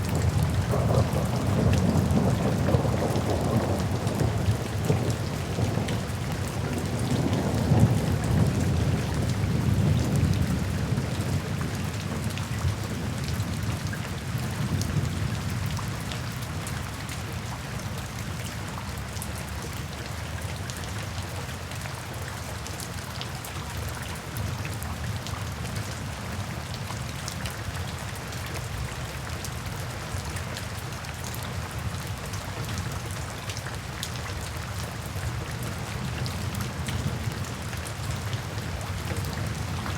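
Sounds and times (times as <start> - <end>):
low rumble of thunder: 0.0 - 16.7, 35.0 - 39.9
steady rain: 0.0 - 39.9.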